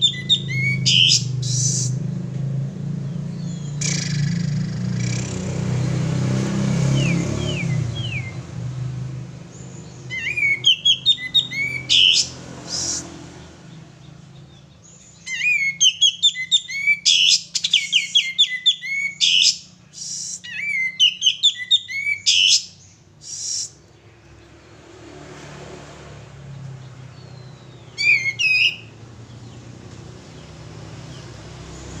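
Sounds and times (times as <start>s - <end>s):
songbird whistling song: 0.0s - 2.1s, 3.0s - 6.1s, 6.8s - 8.6s, 9.5s - 13.1s, 14.0s - 24.0s, 27.1s - 29.6s.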